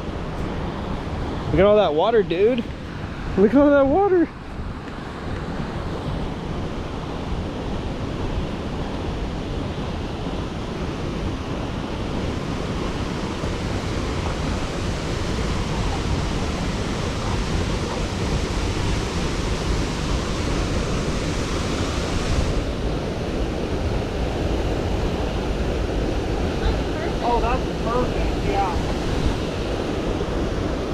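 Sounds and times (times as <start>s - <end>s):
waterfall rushing: 9.7s - 30.9s.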